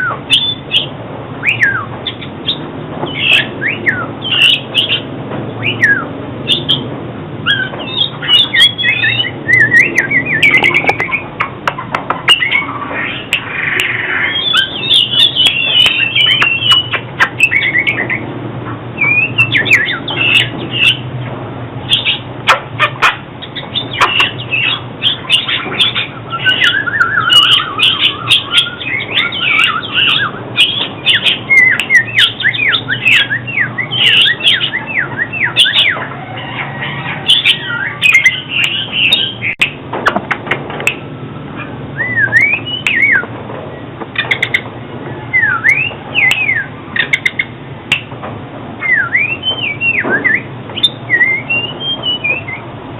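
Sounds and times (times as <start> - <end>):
bird singing whistled phrases: 0.0 - 5.0, 5.6 - 11.3, 12.3 - 18.2, 19.0 - 21.0, 23.4 - 39.8, 42.0 - 43.3, 45.3 - 48.1, 48.8 - 52.7.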